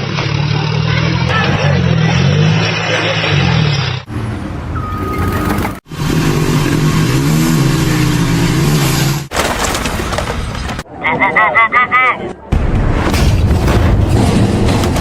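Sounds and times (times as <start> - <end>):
vehicle engines revving: 0.0 - 9.4
steady beep: 4.8 - 5.5.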